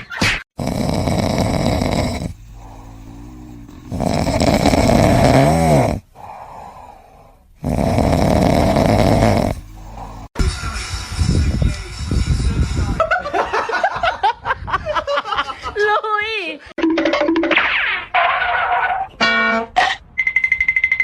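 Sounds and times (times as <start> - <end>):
pet snoring loudly: 0.6 - 10.4.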